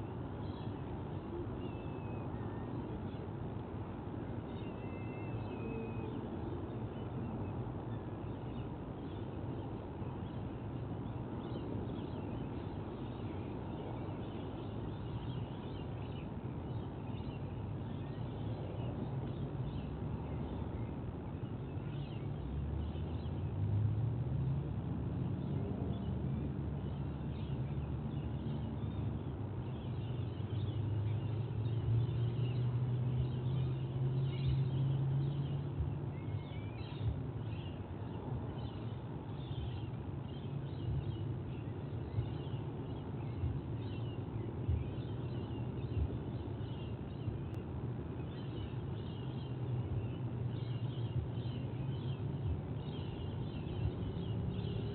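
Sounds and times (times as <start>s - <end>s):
steady low rumble: 51.1s - 54.9s.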